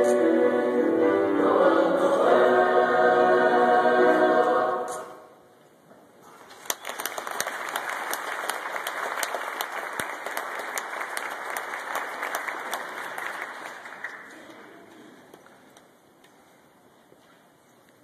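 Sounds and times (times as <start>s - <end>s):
audience applauding: 6.5s - 14.7s.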